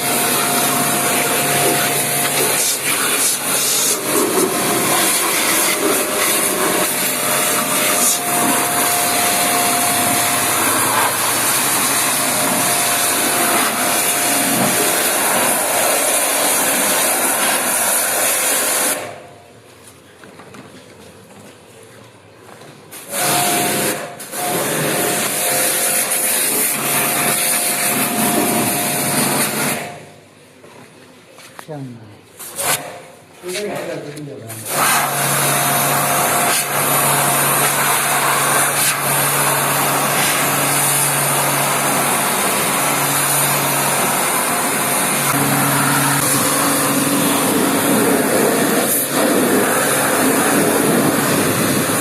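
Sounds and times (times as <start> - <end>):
cleaning machine hissing: 0.0 - 19.2, 23.0 - 30.0, 34.5 - 52.0
motor whine: 39.3 - 52.0.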